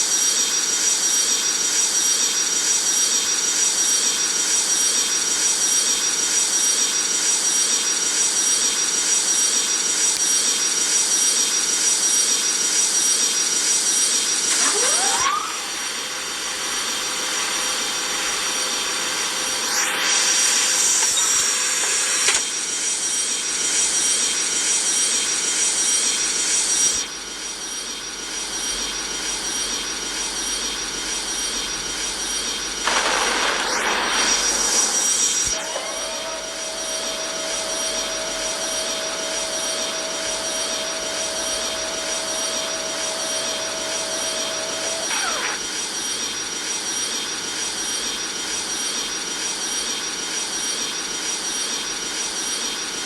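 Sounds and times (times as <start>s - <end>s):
high steady whine: 14.5s - 22.7s, 24.9s - 46.6s
jet engines running: 32.7s - 46.0s.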